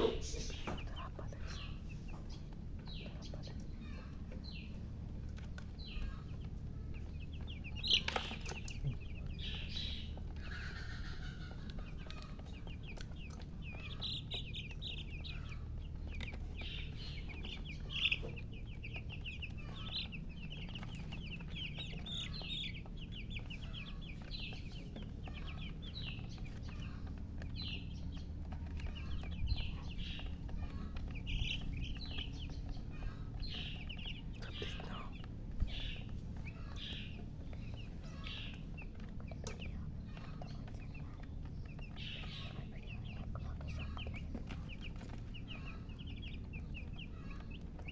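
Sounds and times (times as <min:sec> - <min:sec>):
baby chicks peeping: 0:00.0 - 0:47.9
steady low hum: 0:00.0 - 0:47.9.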